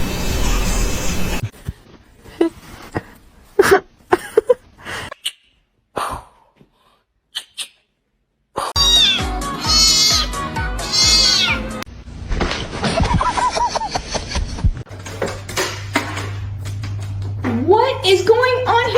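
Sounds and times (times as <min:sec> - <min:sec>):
background music with beat: 0:08.8 - 0:10.9
cat meowing: 0:08.8 - 0:11.8.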